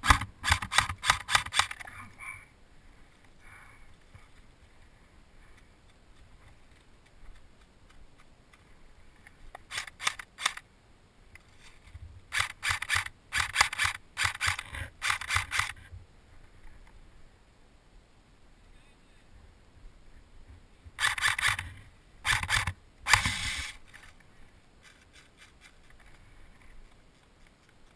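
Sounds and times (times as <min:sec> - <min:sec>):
sharp clicks in clusters: 0:00.0 - 0:01.9, 0:09.5 - 0:10.6, 0:12.3 - 0:15.8, 0:21.0 - 0:24.1.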